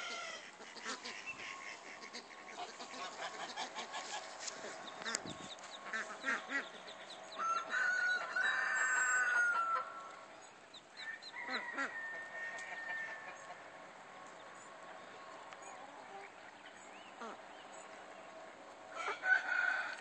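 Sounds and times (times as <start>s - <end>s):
ducklings peeping: 0.0s - 19.2s
rooster crowing: 7.3s - 10.2s, 11.0s - 13.6s, 18.9s - 20.0s.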